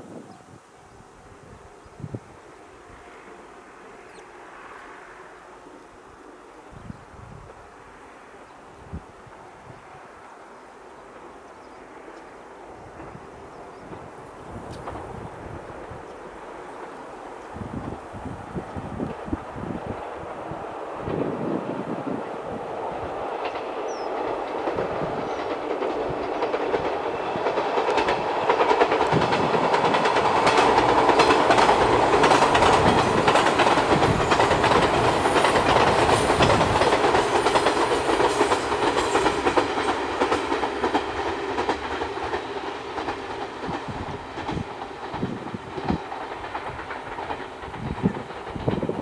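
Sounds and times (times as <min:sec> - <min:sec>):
electric train passing: 0:01.2 - 0:49.0
wheels clicking over rail joints: 0:23.3 - 0:49.0.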